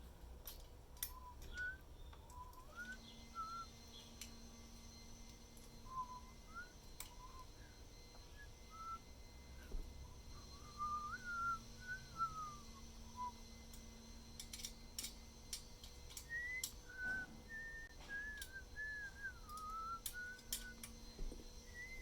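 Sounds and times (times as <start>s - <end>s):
person whistling a tune: 1.1s - 4.0s, 5.8s - 13.6s, 16.2s - 22.0s.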